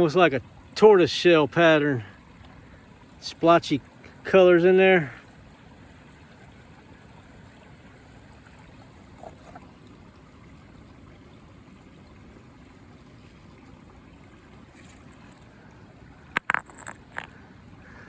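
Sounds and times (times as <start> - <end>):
creek water running: 0.0 - 18.0.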